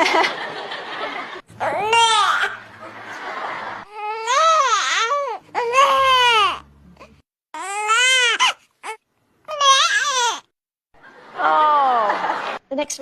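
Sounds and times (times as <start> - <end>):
infant crying: 1.6 - 2.6, 3.9 - 10.5.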